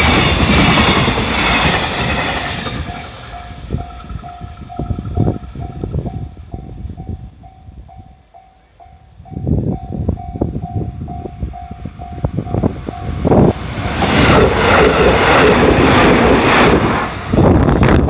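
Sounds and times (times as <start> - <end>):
train wheels clacking: 0.0 - 7.2, 11.1 - 17.4
train rushing past: 0.0 - 8.1, 9.3 - 18.0
level crossing warning bell: 2.8 - 13.5.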